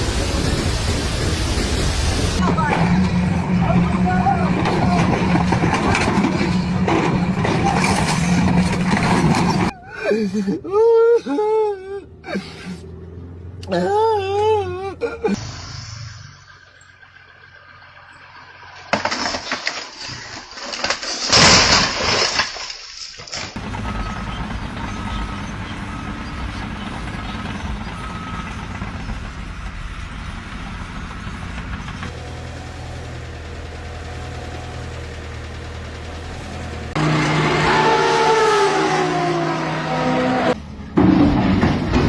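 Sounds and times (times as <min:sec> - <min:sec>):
engine running steadily: 0:23.6 - 0:42.0.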